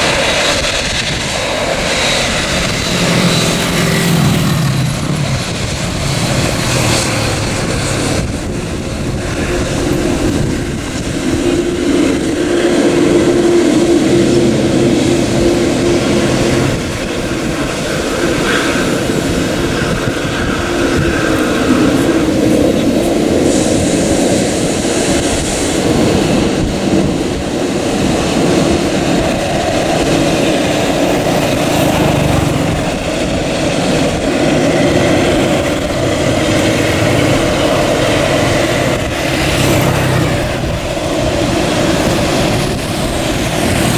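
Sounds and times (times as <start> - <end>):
jet engines running: 0.0 - 43.9.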